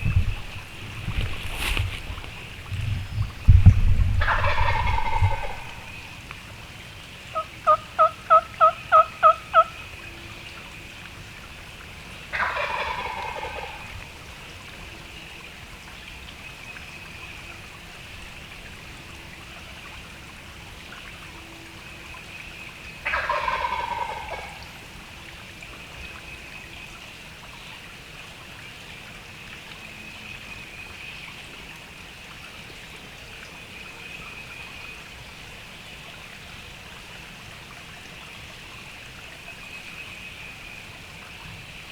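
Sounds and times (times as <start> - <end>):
turkey call yelps: 4.2 - 5.9, 7.4 - 9.7, 23.0 - 24.6
turkey gobbling: 4.2 - 6.0, 7.4 - 9.7, 12.3 - 13.9, 23.0 - 24.6.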